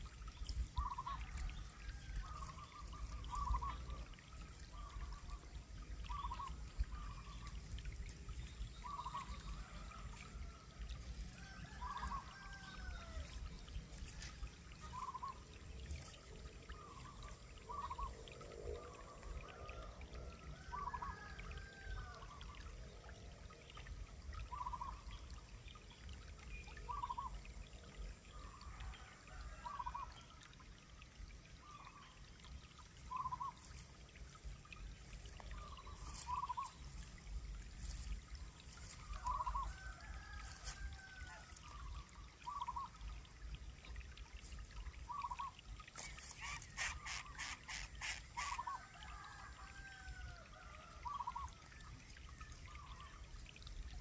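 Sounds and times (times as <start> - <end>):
short bird calls: 46.0 - 48.8.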